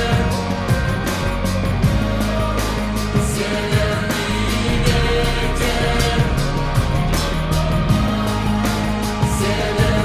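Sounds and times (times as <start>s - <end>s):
faint singing: 0.0s - 10.0s
slowed reverb-heavy pop song: 0.0s - 10.0s.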